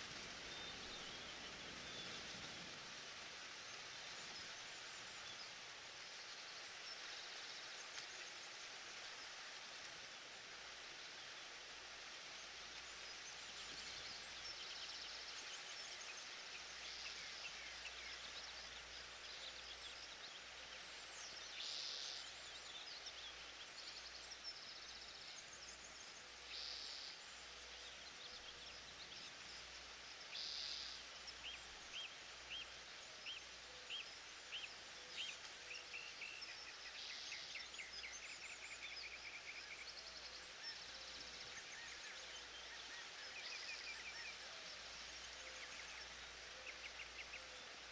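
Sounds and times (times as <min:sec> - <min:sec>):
steady hiss: 0:00.0 - 0:47.9.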